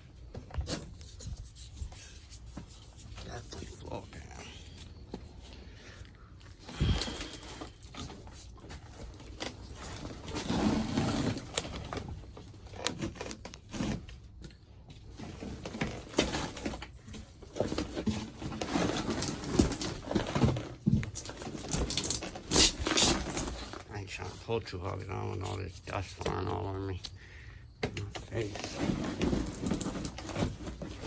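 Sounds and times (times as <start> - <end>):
floor padding tearing and scraping: 6.5 - 14.4, 15.0 - 24.4, 28.2 - 31.0.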